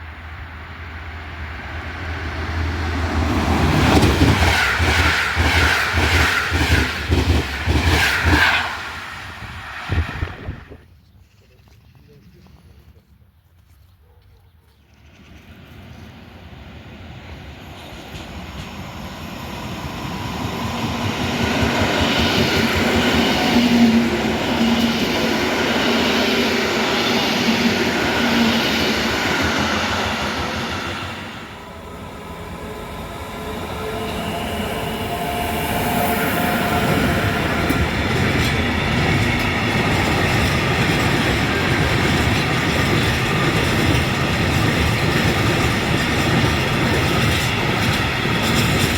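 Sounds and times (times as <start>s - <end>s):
train wheels clattering on rails: 3.2s - 8.9s, 17.7s - 31.4s, 36.3s - 48.9s
electric train traction motors whining: 18.1s - 48.9s.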